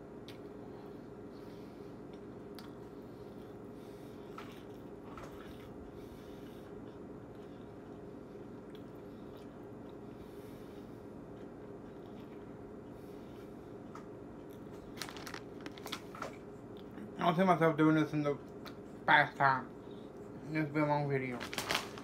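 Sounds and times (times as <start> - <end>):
man chewing chips: 4.2 - 10.2, 10.9 - 17.2, 18.3 - 19.1.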